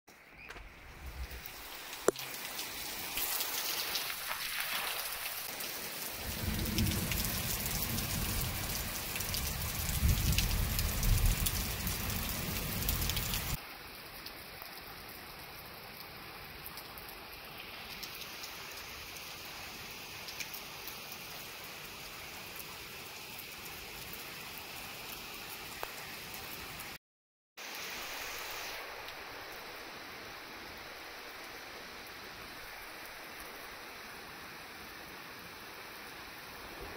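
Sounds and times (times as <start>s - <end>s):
heavy rain pouring: 0.5s - 27.0s
thunder rumble: 6.2s - 13.6s.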